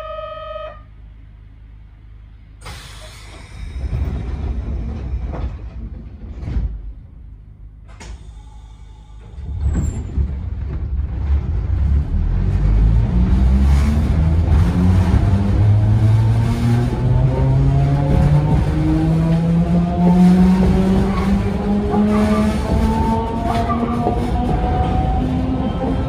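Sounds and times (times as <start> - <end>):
train running rumble: 1.2 - 26.0.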